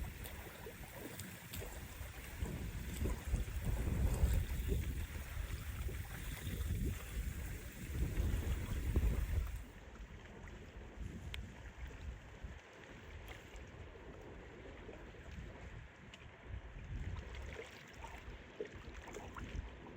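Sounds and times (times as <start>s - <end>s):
wind buffeting microphone: 0.0s - 9.7s
lake waves: 0.0s - 16.1s
small splashes and clicks: 0.0s - 19.9s
water lapping: 0.0s - 19.9s.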